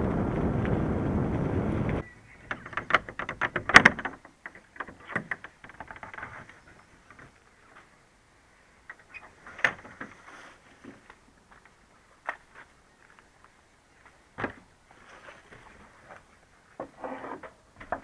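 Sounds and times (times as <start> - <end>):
clicks clatters and knocks: 2.4 - 7.4.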